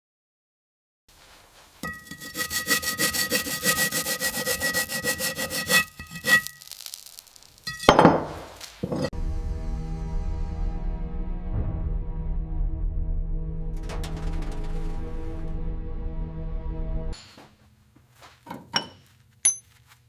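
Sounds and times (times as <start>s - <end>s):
hand tool scraping: 1.5s - 7.9s, 8.7s - 9.1s
music: 9.1s - 17.5s.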